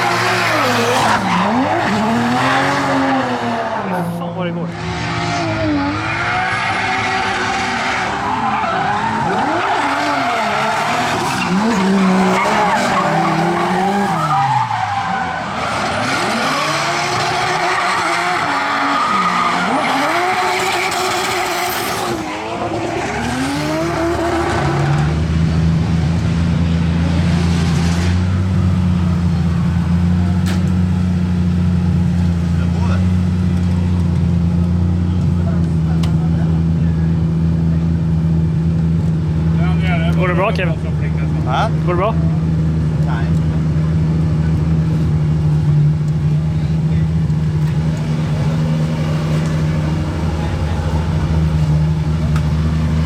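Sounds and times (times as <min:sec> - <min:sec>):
car engine revving: 0:00.0 - 0:53.0
low engine drone: 0:42.2 - 0:53.0.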